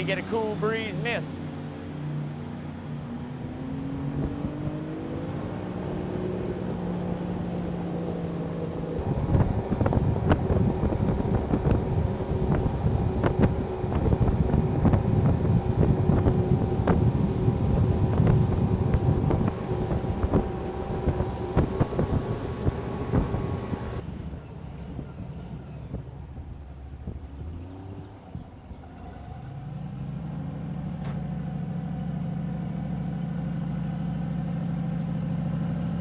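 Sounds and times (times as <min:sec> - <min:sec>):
airboat engine revving: 0:00.0 - 0:36.0
wind rushing on microphone: 0:03.0 - 0:07.8, 0:09.0 - 0:28.7.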